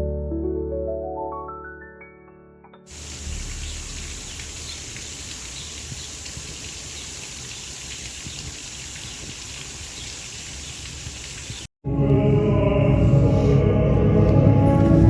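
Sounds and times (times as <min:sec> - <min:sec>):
low rumble: 0:02.9 - 0:05.8, 0:12.1 - 0:15.0
faint bird chirps: 0:02.9 - 0:11.7
insects hissing: 0:02.9 - 0:11.7.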